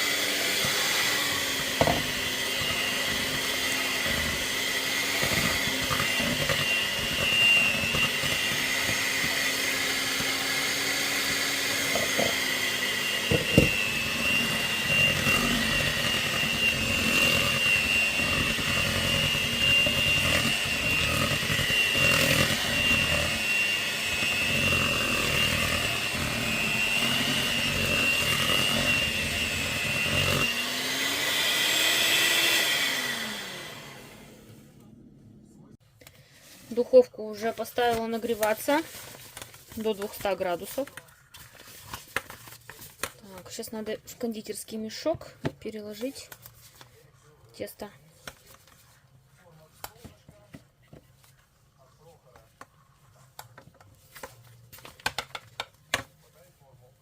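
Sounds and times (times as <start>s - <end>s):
electric mixer motor whine: 0.0s - 35.1s.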